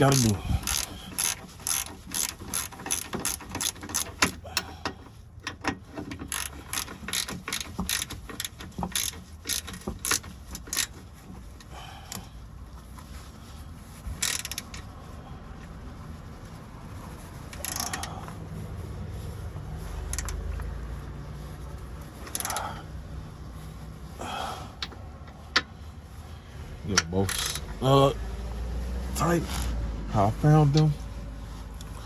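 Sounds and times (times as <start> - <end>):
ratchet wrench clicking: 0.0 - 11.0, 14.1 - 14.8, 17.5 - 18.1, 20.1 - 20.4, 22.2 - 22.7, 27.3 - 27.7.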